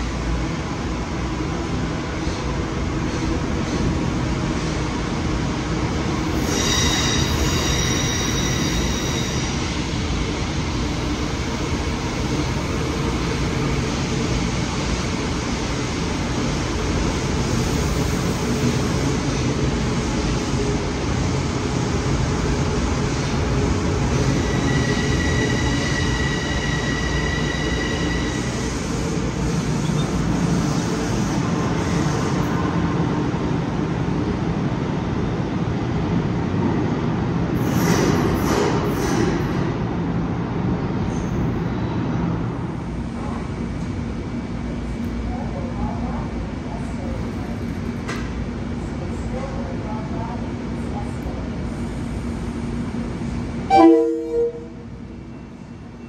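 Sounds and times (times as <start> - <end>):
electric train rumbling: 0.0 - 56.0
train wheels squealing: 6.3 - 9.7, 24.3 - 28.7.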